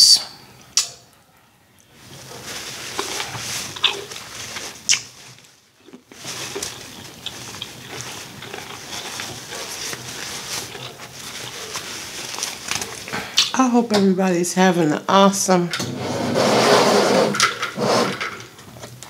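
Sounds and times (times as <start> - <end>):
person chewing and lip-smacking: 4.9 - 5.1, 5.8 - 11.7.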